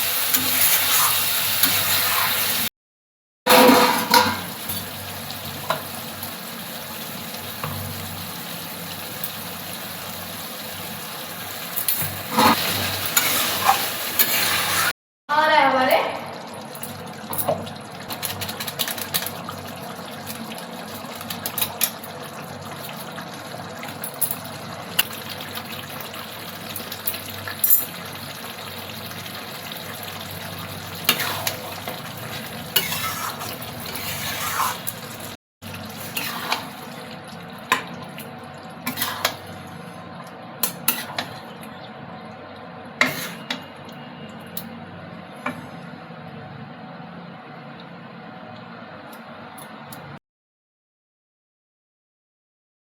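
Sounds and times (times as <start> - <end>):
vegetables sizzling in a pan: 0.0 - 2.7, 3.5 - 14.9, 24.5 - 37.3, 38.8 - 39.8
spoon scraping a pan: 0.3 - 2.6, 12.0 - 14.9, 31.0 - 35.2, 36.0 - 36.8, 38.9 - 39.5, 40.6 - 41.4, 43.0 - 43.7.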